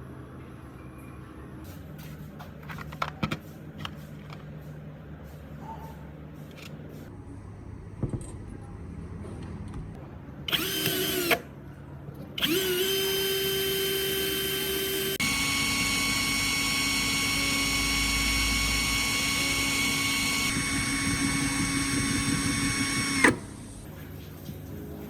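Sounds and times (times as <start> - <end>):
power tool motor whining: 10.5 - 11.4, 12.4 - 23.8.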